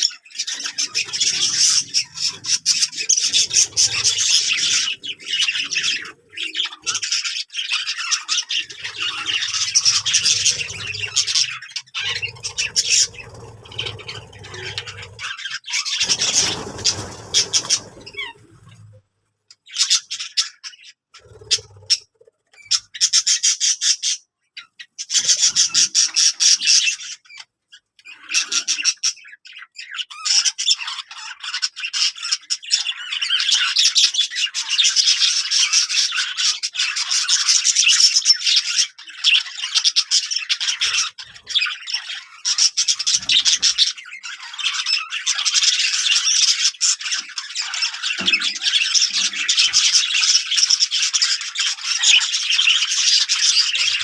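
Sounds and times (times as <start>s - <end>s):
birds squawking and chattering: 0.0s - 54.0s.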